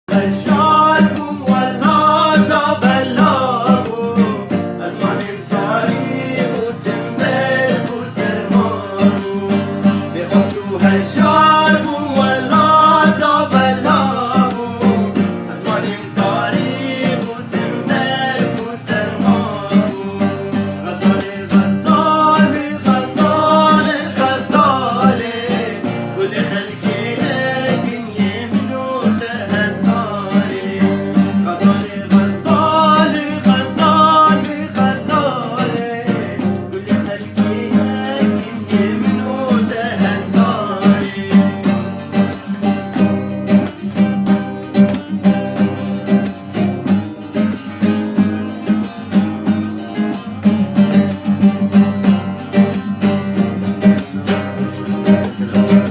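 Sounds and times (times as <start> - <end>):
man singing ornamented lines: 0.1 - 44.0
plucked string instrument: 0.1 - 55.9.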